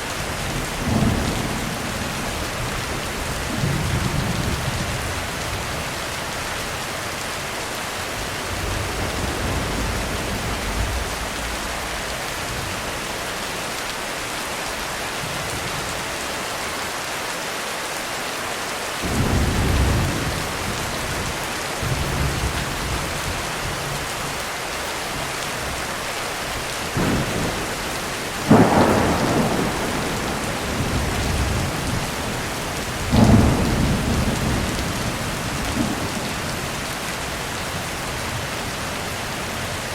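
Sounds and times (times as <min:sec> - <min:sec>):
heavy rain on a roof: 0:00.0 - 0:39.9
thunder: 0:00.8 - 0:05.7, 0:08.2 - 0:12.9, 0:19.0 - 0:23.2, 0:26.9 - 0:36.9.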